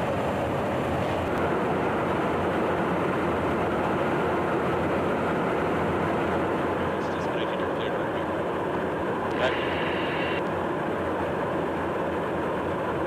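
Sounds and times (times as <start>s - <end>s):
fighter jet engines running: 0.0s - 13.0s.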